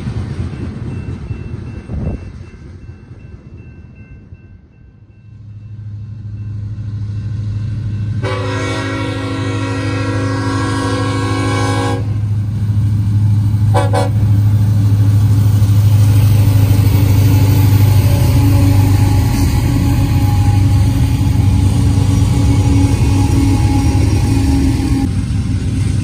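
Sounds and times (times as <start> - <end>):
diesel locomotive engines passing: 0.0 - 26.0
short train horn toot: 8.2 - 12.2, 13.7 - 14.2
train horn blast: 8.2 - 12.3, 13.7 - 14.4, 18.0 - 25.1.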